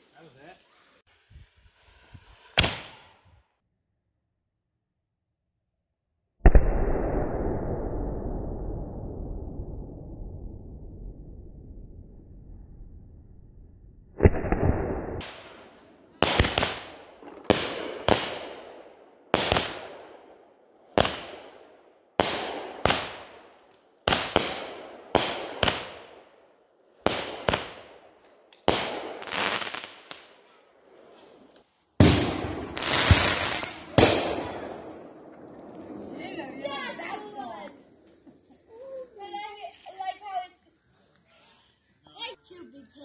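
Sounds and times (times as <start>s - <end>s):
firework bangs: 2.4s - 3.2s, 14.1s - 37.6s.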